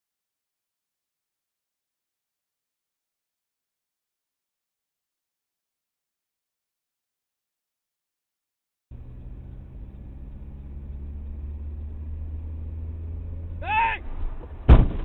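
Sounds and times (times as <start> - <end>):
vehicle engine rumbling: 8.9 - 15.0
person yelling: 13.6 - 14.0
collision bang: 14.0 - 15.0.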